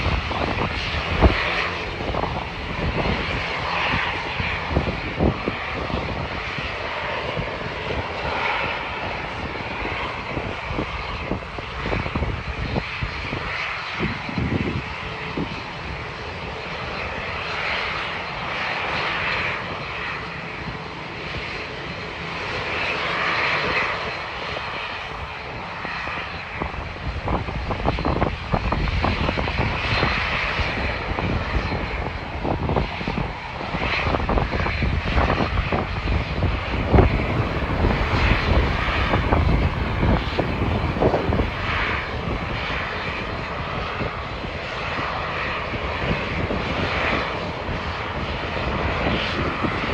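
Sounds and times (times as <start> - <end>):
heavy low rumble: 0.0 - 5.5, 36.7 - 43.0
jet engines roaring: 0.0 - 49.9.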